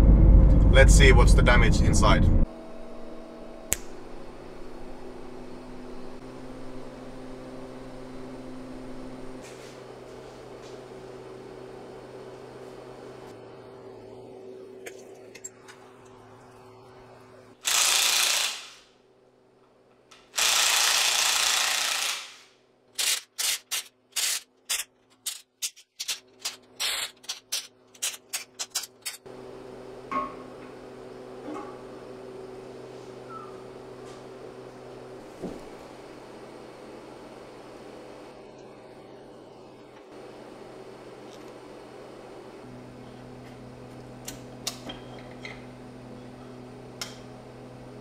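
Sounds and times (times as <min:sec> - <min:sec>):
workshop hum: 0:00.0 - 0:48.0
power tool bursts: 0:17.6 - 0:18.9, 0:20.3 - 0:22.5.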